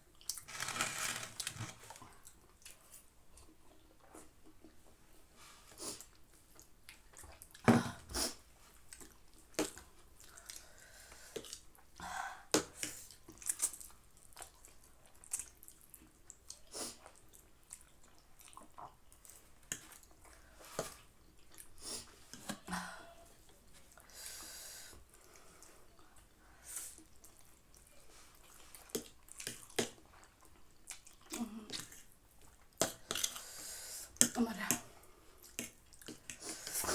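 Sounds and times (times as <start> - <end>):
chewing: 12.8 - 22.4, 25.1 - 33.4.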